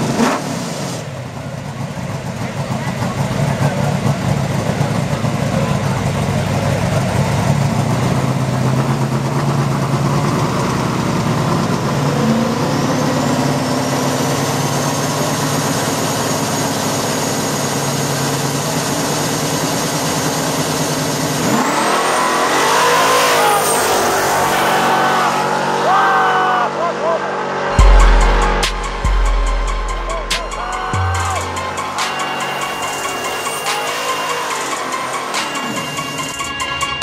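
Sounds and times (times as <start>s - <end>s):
car engines idling and revving: 0.0s - 37.0s
cars launching and passing: 19.3s - 37.0s
turbo whine: 27.1s - 37.0s.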